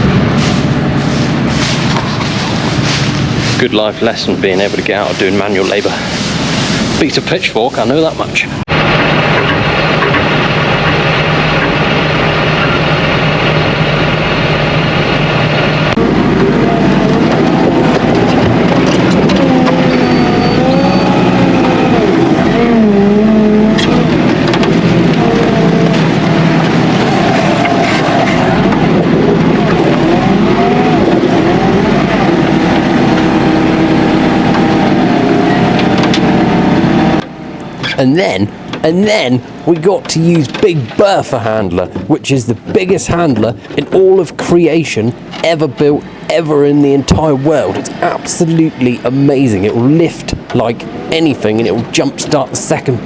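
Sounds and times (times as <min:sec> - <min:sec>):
tractor engine running: 0:00.0 - 0:53.0.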